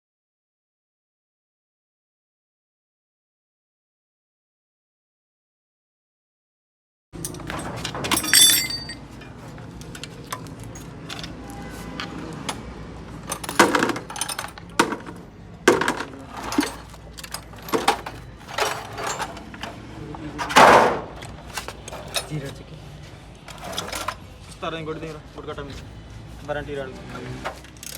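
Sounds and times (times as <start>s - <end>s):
metal tools clinking and knocking: 7.2s - 22.8s, 23.4s - 24.6s, 27.4s - 27.9s.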